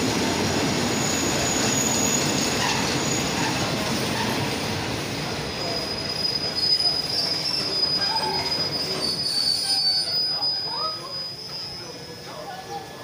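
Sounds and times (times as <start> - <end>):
train wheels rumbling: 0.0 - 12.4
high-pitched wheel squeal: 5.6 - 12.1.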